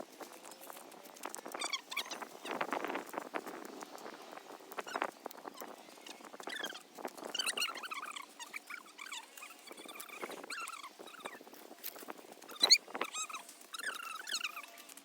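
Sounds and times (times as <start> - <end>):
quick rustles and clicks: 0.0 - 15.0
squeaky sped-up voices: 4.8 - 11.4, 12.5 - 14.8.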